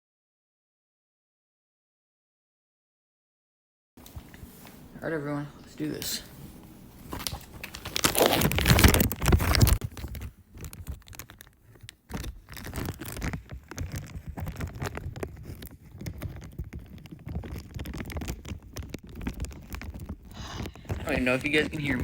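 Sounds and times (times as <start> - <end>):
plastic bag crinkling on microphone: 7.1 - 22.0.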